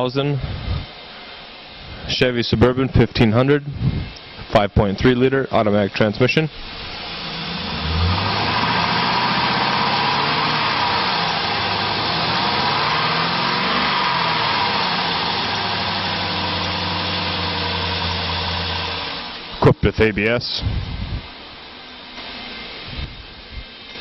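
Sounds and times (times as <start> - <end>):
engine idling: 6.5 - 19.8.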